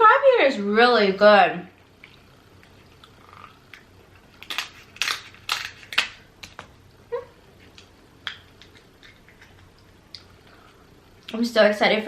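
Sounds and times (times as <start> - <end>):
crab shell cracking: 2.0 - 6.7, 7.6 - 10.4.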